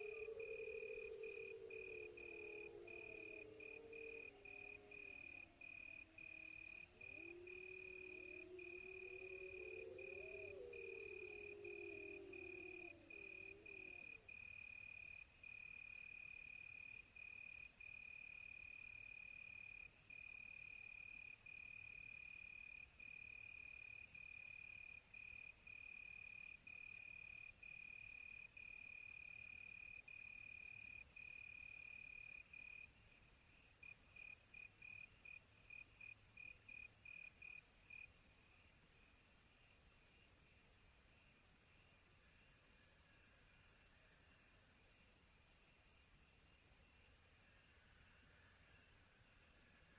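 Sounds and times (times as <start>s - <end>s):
high insect pulsing: 0.0s - 15.2s
crickets chirping: 0.0s - 49.9s.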